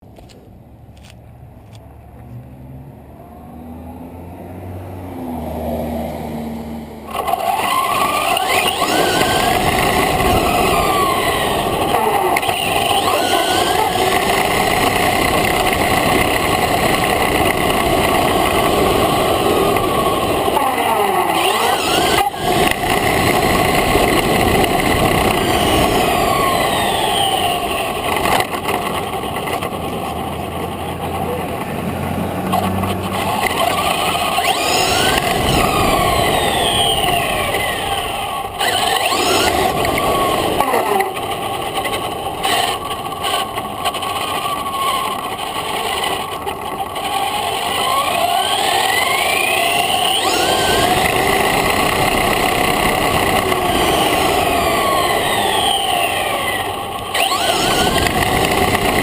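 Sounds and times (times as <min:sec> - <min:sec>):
electric motor whine: 0:05.4 - 0:59.0
steady rush of noise: 0:06.7 - 0:59.0.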